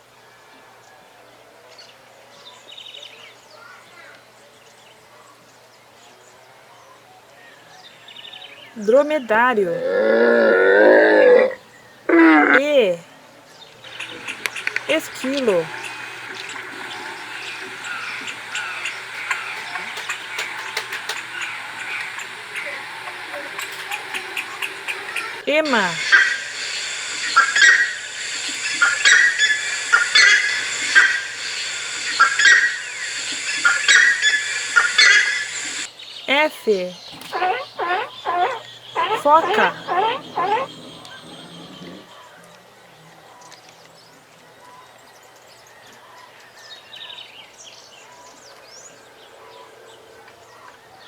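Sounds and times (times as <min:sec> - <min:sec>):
outdoor background hiss: 0:00.0 - 0:45.8
rhea calling: 0:08.8 - 0:13.1, 0:13.8 - 0:42.2
birds chirping and whistling: 0:13.9 - 0:35.9, 0:37.0 - 0:42.1.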